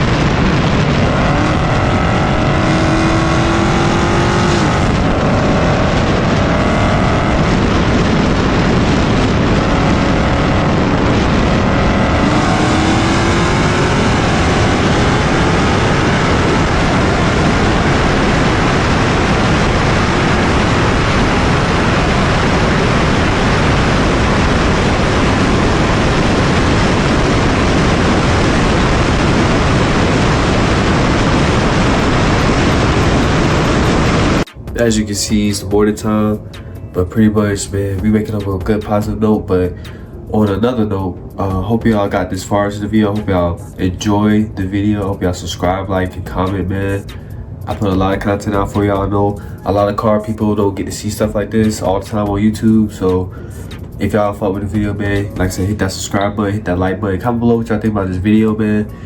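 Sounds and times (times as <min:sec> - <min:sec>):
car engine revving up: 0:00.0 - 0:59.0
wind and road noise: 0:00.0 - 0:59.0.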